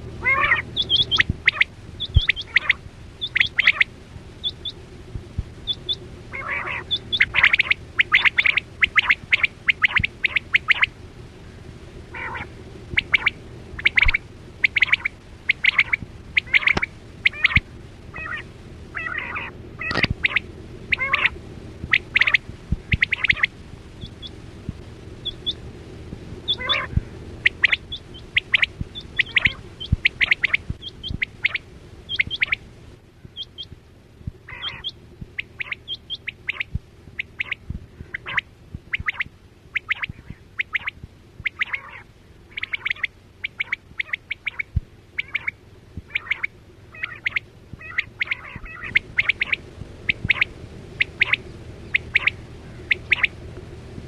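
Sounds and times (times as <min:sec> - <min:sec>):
steady low hum: 0:00.0 - 0:54.0
quail chirping calls: 0:00.2 - 0:04.8, 0:05.6 - 0:11.0, 0:12.1 - 0:24.4, 0:25.2 - 0:25.6, 0:26.4 - 0:32.6, 0:33.2 - 0:33.8, 0:34.4 - 0:53.4.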